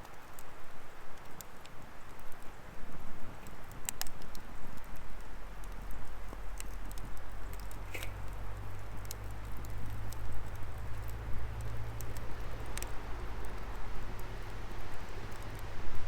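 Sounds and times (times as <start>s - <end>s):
firewood crackling: 0.0s - 16.0s
low steady rumble: 4.6s - 16.0s.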